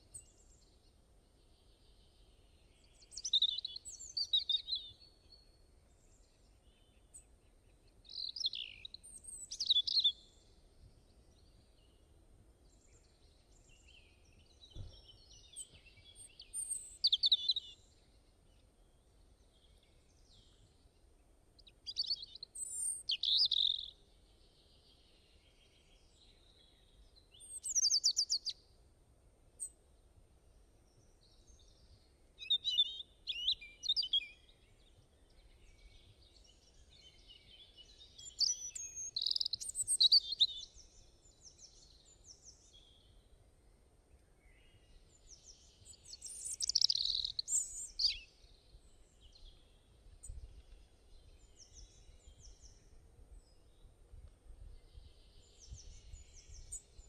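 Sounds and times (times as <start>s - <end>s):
birds chirping and trilling: 31.7s - 43.2s, 44.7s - 53.7s.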